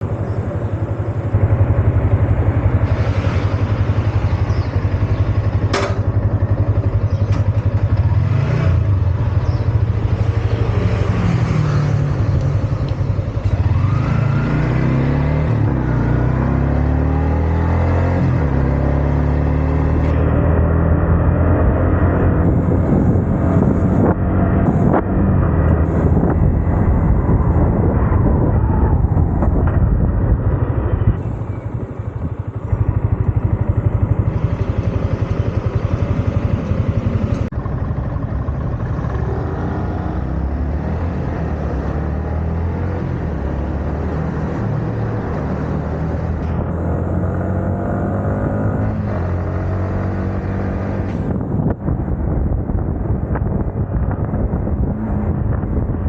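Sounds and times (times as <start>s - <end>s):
motorcycle engine running: 0.0s - 56.0s
wind noise: 20.0s - 56.0s.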